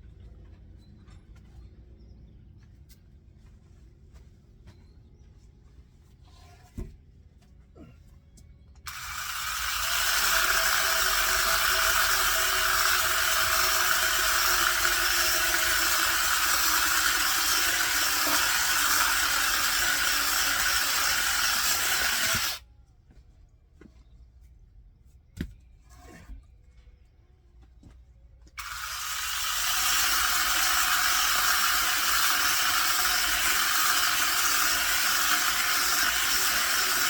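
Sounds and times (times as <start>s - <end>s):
power saw cutting wood: 8.9s - 22.6s, 28.6s - 37.0s.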